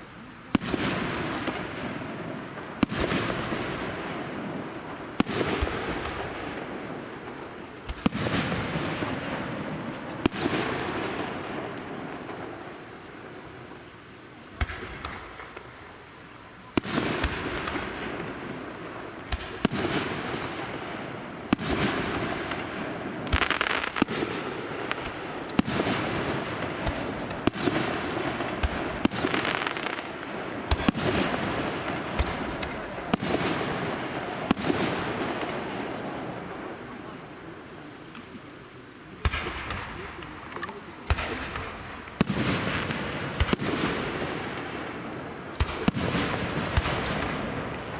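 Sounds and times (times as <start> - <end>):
fireworks bursting: 0.0 - 47.9.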